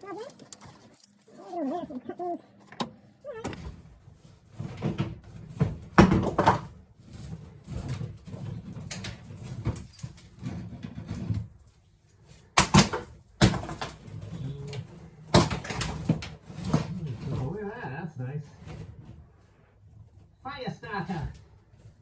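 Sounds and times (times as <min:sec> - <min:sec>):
plaster and debris knocking and scraping: 0:00.0 - 0:17.6.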